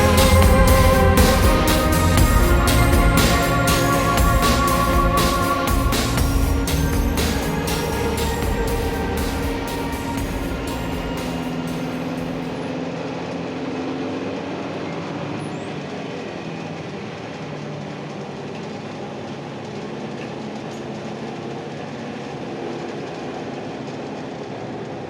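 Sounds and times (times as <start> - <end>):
tyres rumbling: 0.0 - 12.7
bus diesel engine running: 0.0 - 24.9.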